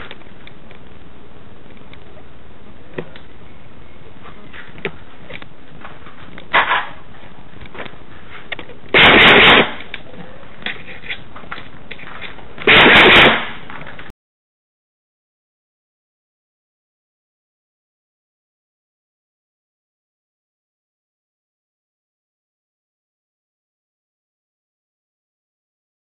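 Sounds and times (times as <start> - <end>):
airsoft gun full-auto bursts: 8.9 - 9.9, 12.6 - 13.6.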